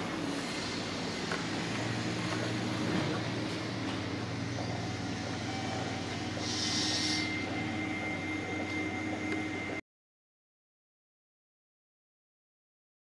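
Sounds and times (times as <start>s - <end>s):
electric train hum: 0.0s - 9.8s
faint whining tones: 0.7s - 9.8s
short air hiss: 6.4s - 7.3s.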